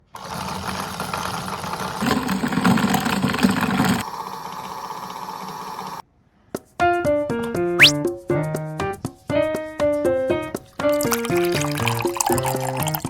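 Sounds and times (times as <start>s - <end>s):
washing machine running: 0.1s - 6.0s.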